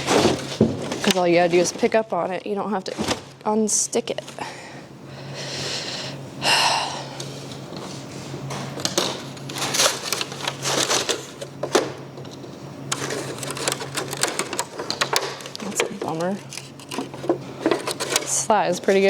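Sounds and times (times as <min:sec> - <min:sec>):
steady low hum: 0:00.0 - 0:19.0
plastic trays crackling and clattering: 0:08.5 - 0:19.0.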